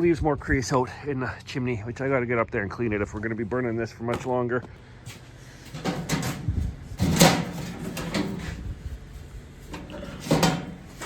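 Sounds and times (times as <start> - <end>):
hard objects knocking and clunking: 9.7 - 11.0.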